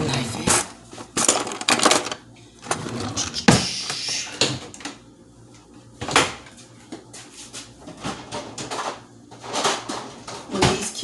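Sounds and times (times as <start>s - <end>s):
drawers and cupboards opening: 1.2s - 3.7s.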